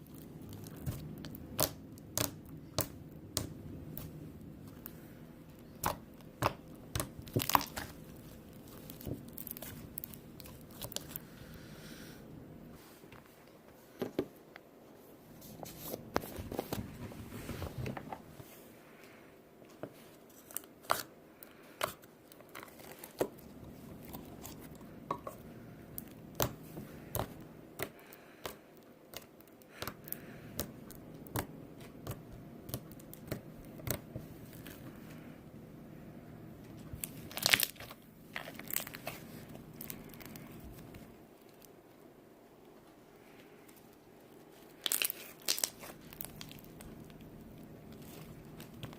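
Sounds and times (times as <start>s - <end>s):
slime popping and crackling: 0.0s - 4.9s, 5.6s - 11.2s, 37.0s - 40.9s, 44.7s - 48.9s
slime squished by hand: 0.0s - 5.0s, 5.6s - 11.3s, 37.0s - 41.6s, 44.6s - 48.9s.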